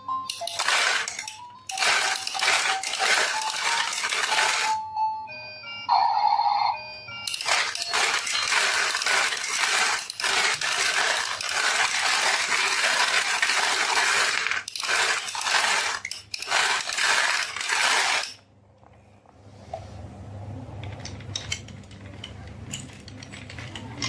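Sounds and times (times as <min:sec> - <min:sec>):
marbles rattling down a marble run: 0:00.3 - 0:04.8, 0:07.3 - 0:18.4.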